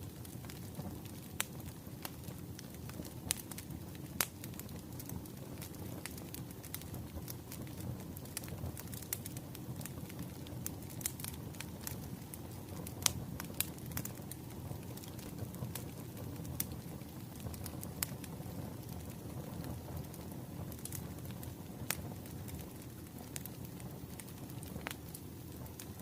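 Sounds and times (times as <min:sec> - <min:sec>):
low fire rumble: 0:00.0 - 0:26.0
wood fire crackling and popping: 0:00.0 - 0:26.0.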